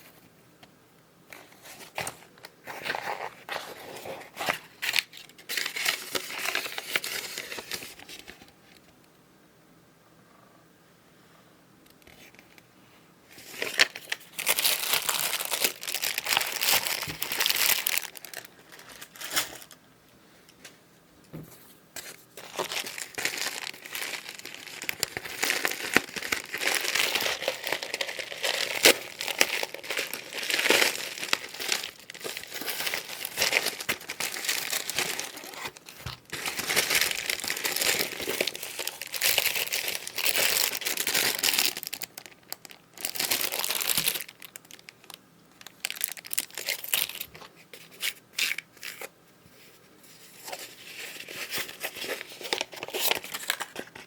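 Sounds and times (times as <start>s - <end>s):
packaging crinkling: 1.8s - 8.5s, 13.4s - 19.8s, 22.0s - 49.1s, 50.4s - 54.0s
packaging tearing: 13.4s - 19.8s, 22.4s - 47.4s, 51.0s - 54.0s.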